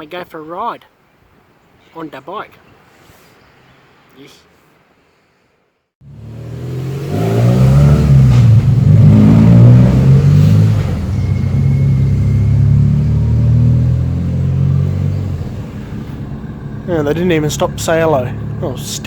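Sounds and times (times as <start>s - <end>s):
dirt bike engine revving: 6.0s - 19.0s.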